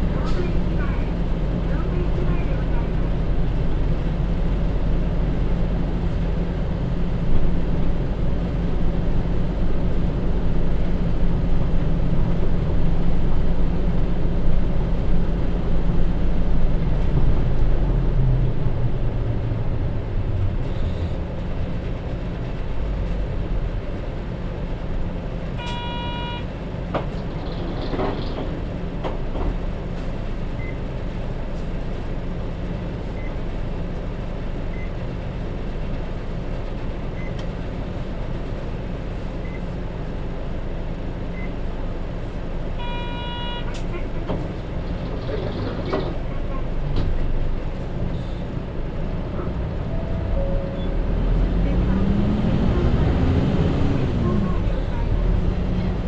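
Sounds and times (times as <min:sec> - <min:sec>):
bus diesel engine running: 0:00.0 - 0:56.0
brief electronic tone: 0:25.6 - 0:26.5, 0:42.8 - 0:43.7, 0:49.9 - 0:51.2.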